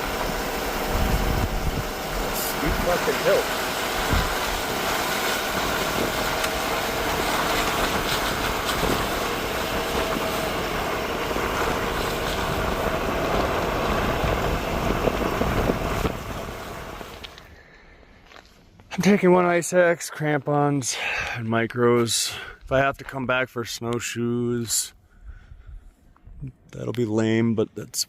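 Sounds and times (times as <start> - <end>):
truck engine and road noise: 0.0 - 17.6.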